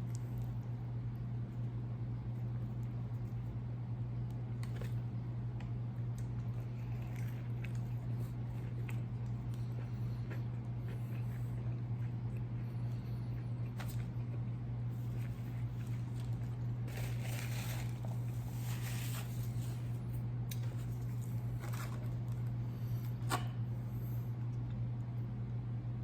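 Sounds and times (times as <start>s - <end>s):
steady low hum: 0.0s - 26.0s
paper packaging crinkling: 15.1s - 20.0s.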